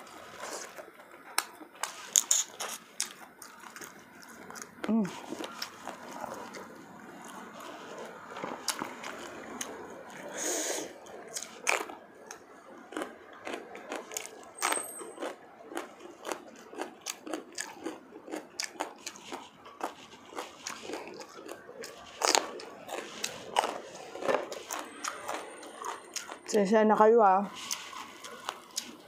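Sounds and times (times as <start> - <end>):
chewing crunches: 0.1 - 26.6, 27.5 - 29.0
wet mouth clicks: 2.1 - 2.8
breathy hiss: 10.3 - 11.0.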